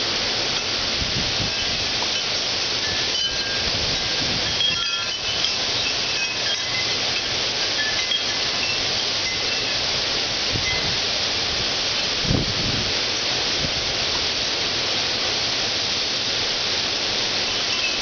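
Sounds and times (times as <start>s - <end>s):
heavy rain pouring: 0.0s - 18.0s
high tinkling notes: 0.5s - 11.0s, 17.4s - 18.0s.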